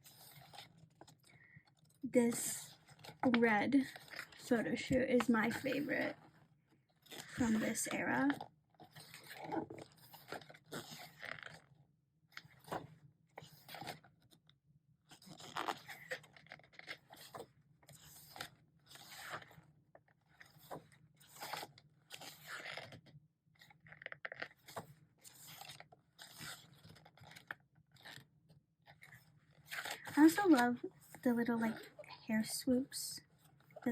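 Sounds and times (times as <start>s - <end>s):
pages being turned: 0.0s - 1.2s, 8.9s - 11.7s, 12.4s - 12.8s, 15.1s - 19.6s, 20.4s - 23.0s, 23.6s - 28.2s, 29.0s - 31.2s.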